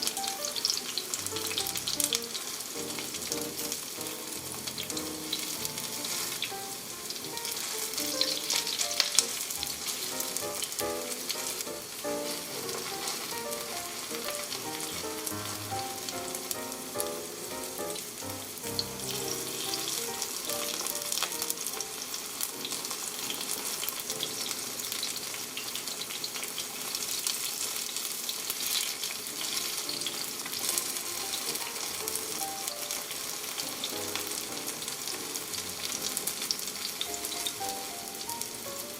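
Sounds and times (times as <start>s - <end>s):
food sizzling in oil: 0.0s - 38.9s.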